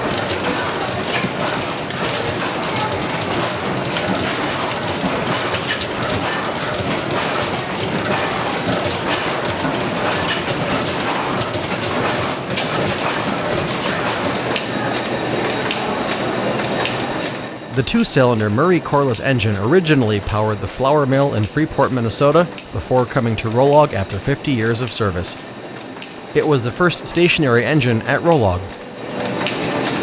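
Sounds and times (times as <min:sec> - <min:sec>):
engine machinery clattering: 0:00.0 - 0:16.2.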